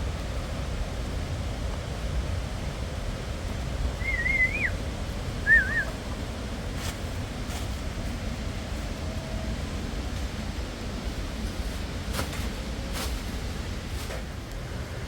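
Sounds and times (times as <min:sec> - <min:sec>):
warbling bird calls: 0:04.0 - 0:06.3.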